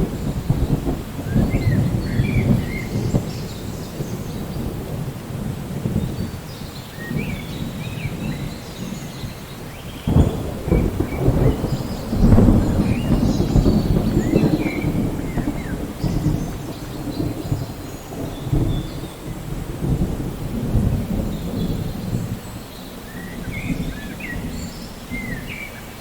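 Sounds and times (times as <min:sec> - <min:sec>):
thunder peal: 0:00.0 - 0:06.3, 0:10.1 - 0:22.4
steady rain: 0:00.0 - 0:26.0
thunder rumbling: 0:00.0 - 0:26.0.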